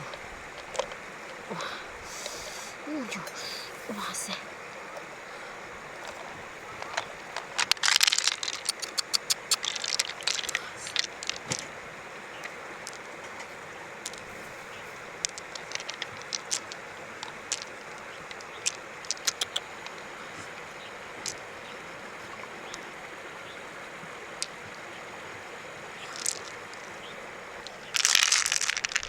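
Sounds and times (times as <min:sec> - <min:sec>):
running water rushing: 0:00.0 - 0:29.0
sharp clicks and scrapes: 0:06.8 - 0:10.6.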